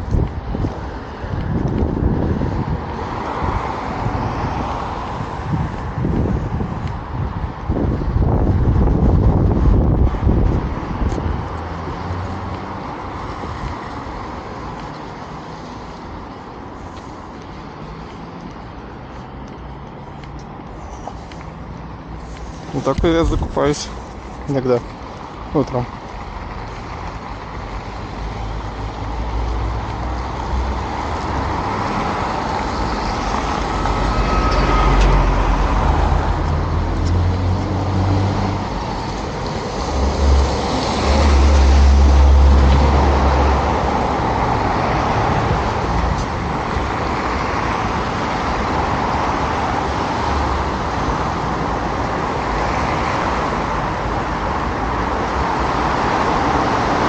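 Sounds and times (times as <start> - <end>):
cars passing on busy road: 0.0 - 57.0
large vehicle rumbling past: 27.8 - 52.4.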